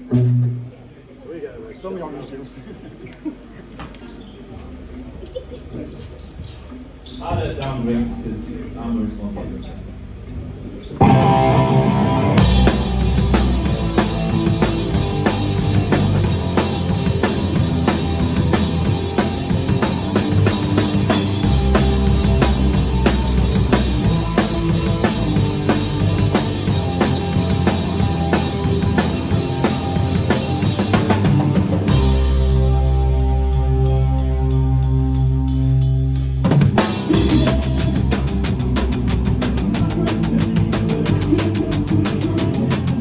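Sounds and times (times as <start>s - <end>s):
drum kit beat: 11.0s - 43.0s
live rock band playing: 11.0s - 43.0s.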